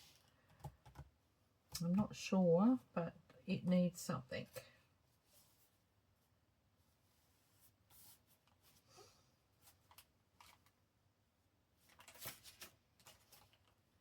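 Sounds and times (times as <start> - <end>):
paper pages rustling: 9.6 - 10.8, 11.8 - 13.8.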